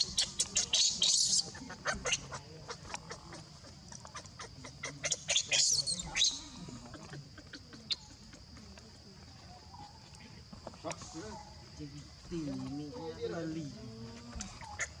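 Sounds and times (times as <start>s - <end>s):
baby monkey squealing: 0.0s - 2.4s, 4.4s - 6.4s.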